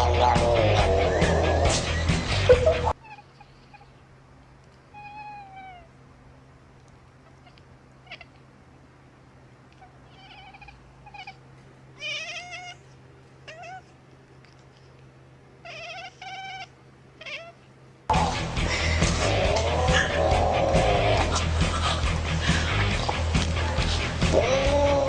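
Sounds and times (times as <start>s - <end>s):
loud music: 0.0s - 2.9s, 18.1s - 25.0s
faint steady hum: 0.0s - 25.0s
cat meowing: 2.9s - 4.0s, 4.9s - 6.0s, 7.2s - 8.4s, 9.7s - 11.4s, 12.0s - 14.0s, 15.6s - 17.7s.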